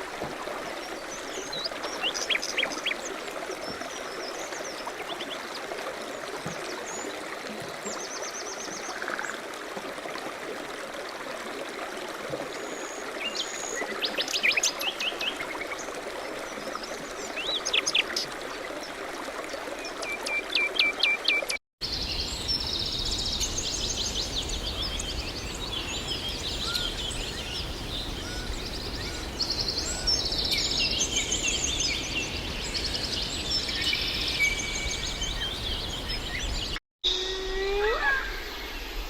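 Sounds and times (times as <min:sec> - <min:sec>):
songbirds chirping: 0:19.8 - 0:36.8
trilling birdsong chorus: 0:20.4 - 0:36.8.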